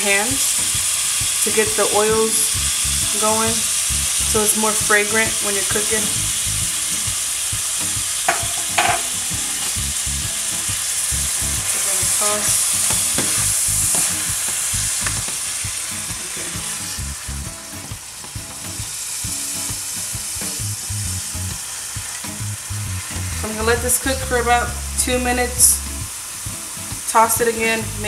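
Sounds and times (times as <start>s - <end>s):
chicken sizzling in oil: 0.0s - 28.0s
spatula scraping and tapping: 8.3s - 9.8s, 12.8s - 15.4s.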